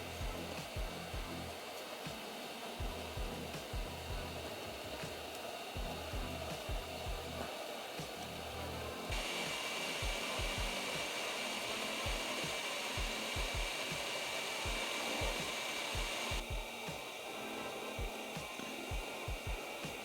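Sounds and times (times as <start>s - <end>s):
brighter hiss: 0.0s - 20.0s
electric blower hiss: 0.0s - 20.0s.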